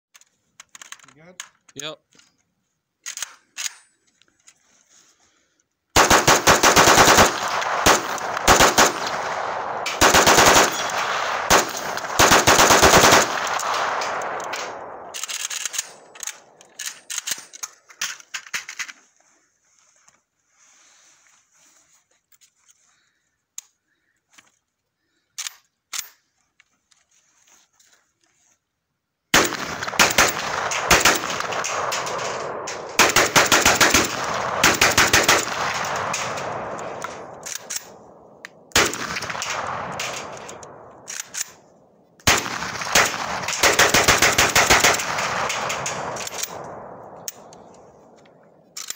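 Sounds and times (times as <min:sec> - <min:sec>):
single sharp gunshots: 0:06.0 - 0:15.1, 0:29.4 - 0:37.4
rifle rapid fire: 0:06.0 - 0:16.6, 0:29.4 - 0:41.4, 0:42.2 - 0:48.0.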